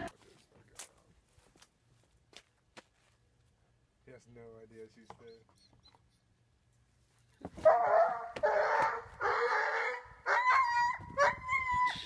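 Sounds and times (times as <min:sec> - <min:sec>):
animal high whining cries: 0:10.3 - 0:12.0.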